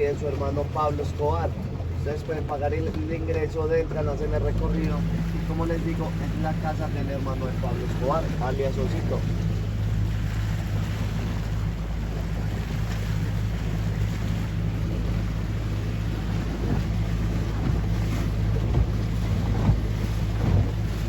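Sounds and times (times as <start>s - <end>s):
boat engine running: 0.0s - 21.0s
wind buffeting microphone: 2.8s - 21.0s
dull thumps: 16.6s - 21.0s.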